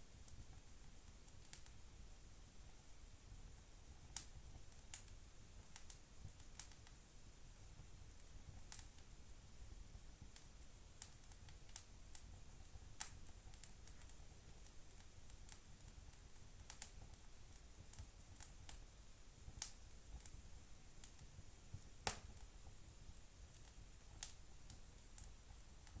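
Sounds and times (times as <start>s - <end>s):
wood fire crackling: 0.1s - 26.0s
sharp fire pops: 19.5s - 20.4s, 21.0s - 22.5s.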